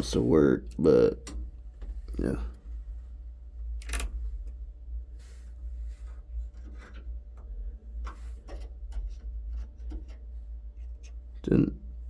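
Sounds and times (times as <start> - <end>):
steady low rumble: 0.0 - 12.0
small clicks and knocks: 3.8 - 4.6.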